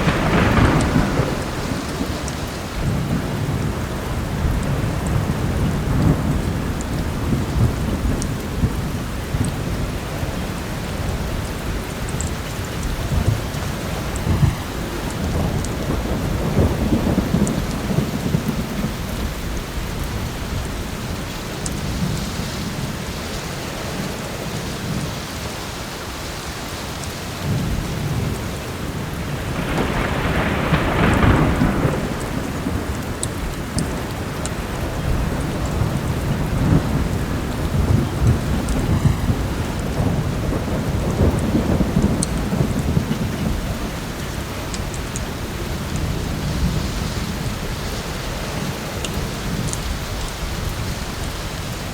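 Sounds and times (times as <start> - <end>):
rolling thunder: 0.0 - 25.4, 27.4 - 51.9
heavy rain: 0.0 - 51.9.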